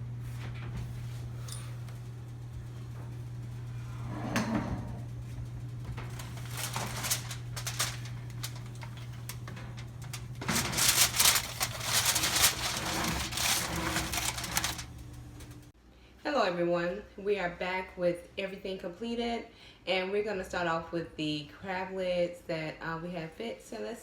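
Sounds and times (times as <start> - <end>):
steady low hum: 0.0 - 15.8
rustling and clattering: 5.8 - 15.7.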